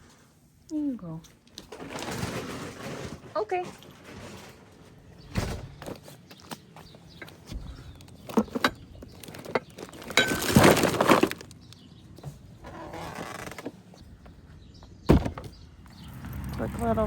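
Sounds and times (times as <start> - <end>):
dishes rattling clatter: 8.2 - 11.5.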